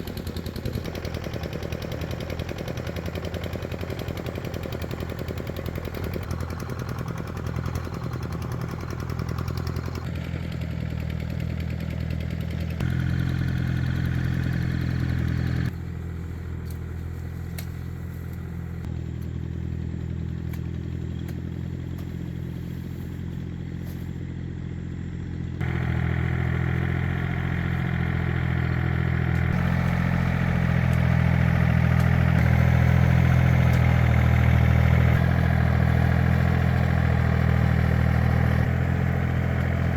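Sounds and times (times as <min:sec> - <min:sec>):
walking tractor engine humming: 0:00.0 - 0:39.9.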